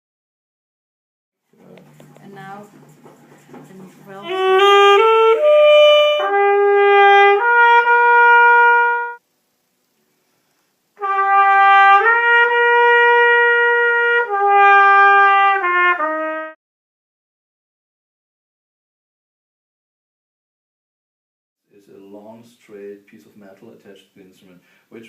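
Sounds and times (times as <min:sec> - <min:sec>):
saxophone playing held notes: 0:04.1 - 0:09.2, 0:11.0 - 0:16.6.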